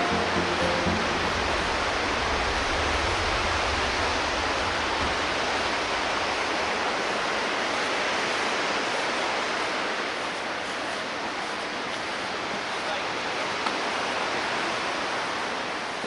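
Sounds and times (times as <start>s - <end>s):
low rumble: 0.0s - 9.0s
steady rushing noise: 0.0s - 16.0s.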